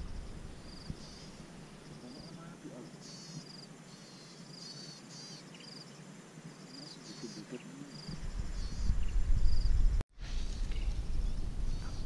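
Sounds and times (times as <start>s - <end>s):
low rumble on microphone: 0.0s - 1.6s, 8.1s - 12.0s
buzzy insect chirps: 0.0s - 9.8s.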